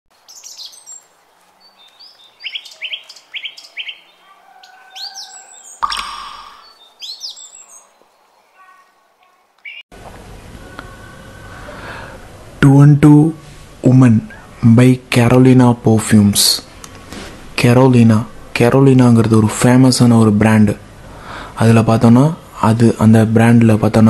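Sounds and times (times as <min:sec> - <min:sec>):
birds chirping: 0:00.1 - 0:09.9.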